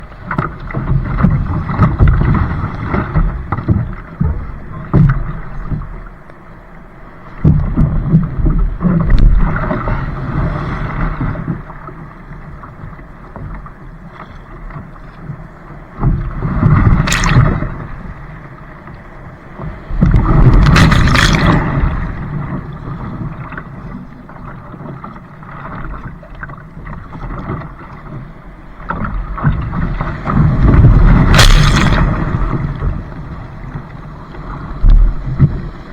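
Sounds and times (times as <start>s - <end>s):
wind rumbling on microphone: 0.0s - 6.2s, 7.2s - 35.9s
water splashing: 15.8s - 35.9s.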